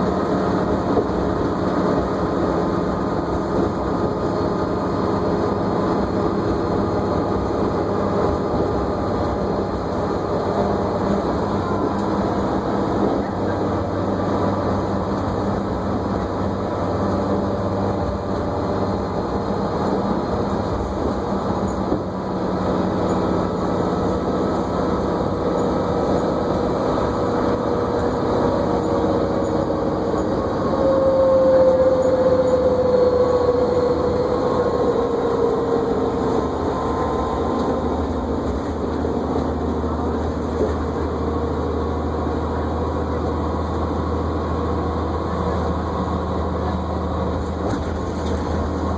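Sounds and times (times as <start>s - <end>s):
bus engine and road noise: 0.0s - 48.9s
whine sliding down in pitch: 30.4s - 39.2s.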